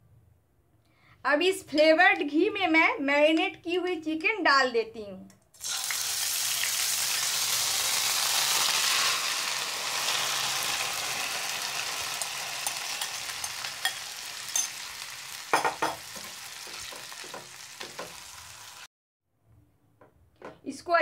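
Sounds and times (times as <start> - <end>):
chicken sizzling in a pan: 5.6 - 18.9
spatula knocking against pan: 15.5 - 18.2
spatula stirring and scraping: 16.0 - 18.2.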